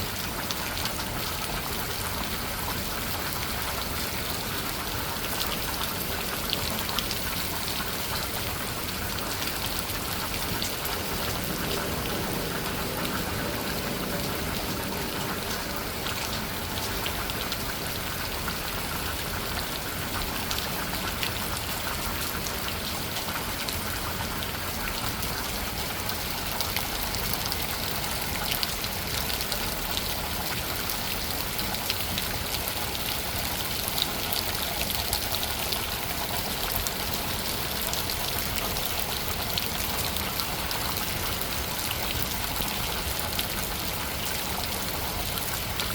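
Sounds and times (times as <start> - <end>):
pouring rain: 0.0 - 45.9
raindrops tapping surfaces: 0.0 - 45.9.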